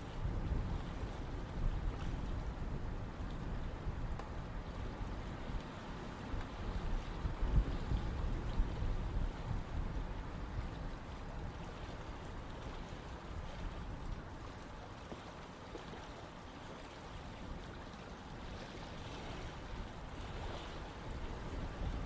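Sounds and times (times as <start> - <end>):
river flowing with low rumble: 0.0 - 22.0.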